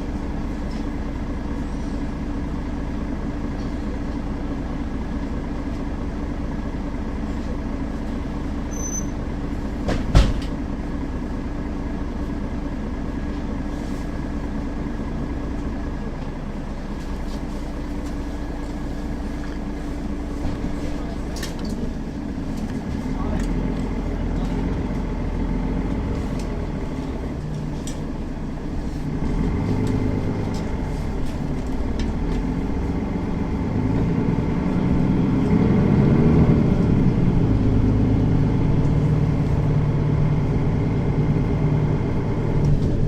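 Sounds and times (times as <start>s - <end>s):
bus engine drone: 0.0s - 43.0s
short high beep: 8.7s - 9.1s
rolling rumble: 9.2s - 43.0s
sharp thump: 9.8s - 10.5s.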